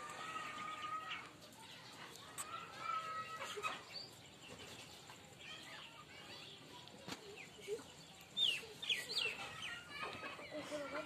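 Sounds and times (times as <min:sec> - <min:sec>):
faint yard background: 0:00.0 - 0:11.0
high bird chirps: 0:08.1 - 0:10.0.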